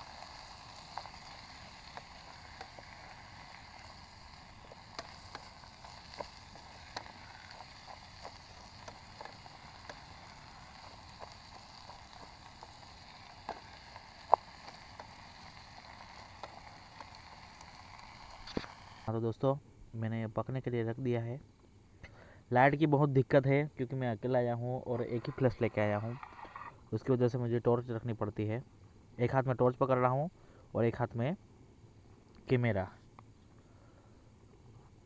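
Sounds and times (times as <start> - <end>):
masala sizzling in a pan: 0.0 - 19.1, 24.6 - 27.1.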